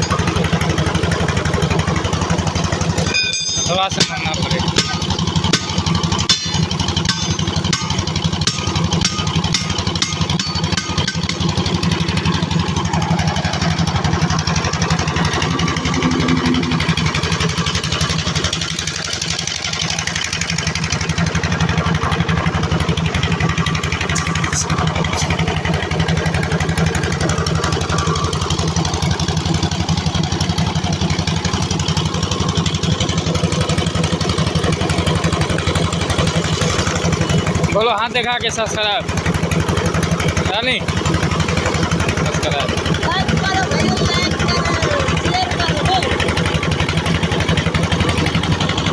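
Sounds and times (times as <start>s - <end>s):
engine running: 0.0s - 48.9s
sharp knocks: 3.1s - 11.5s.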